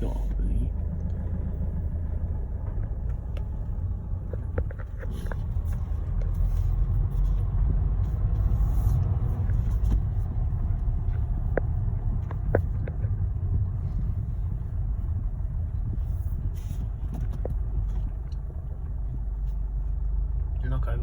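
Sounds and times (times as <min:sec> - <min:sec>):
engine low rumble: 0:00.0 - 0:21.0
faint clicks and knocks: 0:02.2 - 0:07.0, 0:09.0 - 0:14.3.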